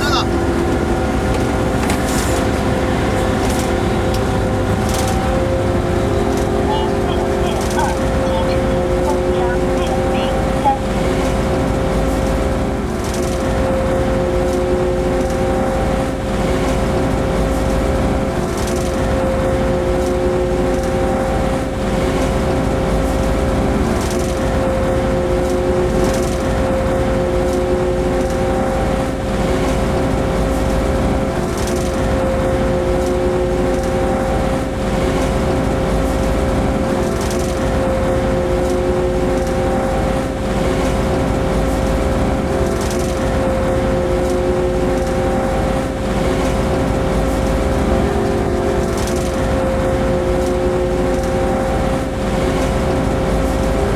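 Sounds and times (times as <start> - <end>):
locomotive cab hum: 0.0 - 18.4.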